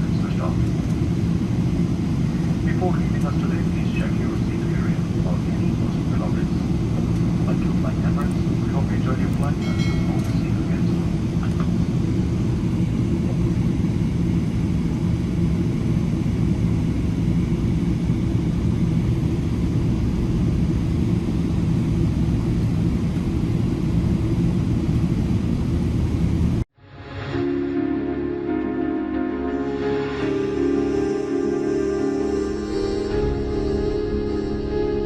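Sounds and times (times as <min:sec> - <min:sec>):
low steady hum: 0:00.0 - 0:26.6
airplane cabin rumble: 0:00.0 - 0:26.7.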